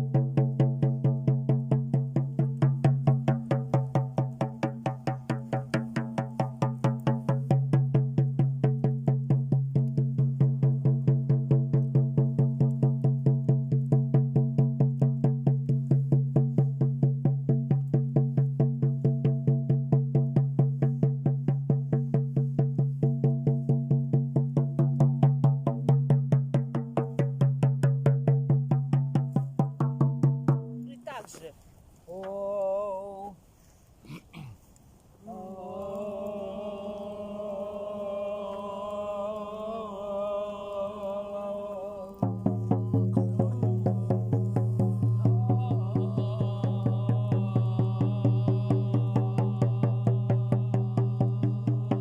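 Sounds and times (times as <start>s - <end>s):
frame drum beaten steadily: 0.0s - 31.1s, 42.2s - 52.0s.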